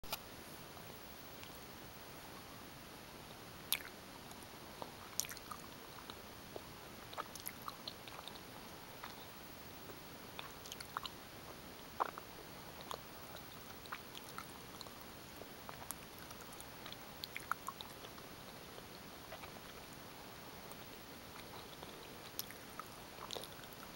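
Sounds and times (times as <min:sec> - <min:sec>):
steady background hiss: 0:00.0 - 0:23.9
mouth chewing clicks and smacks: 0:03.7 - 0:19.9, 0:20.6 - 0:23.9.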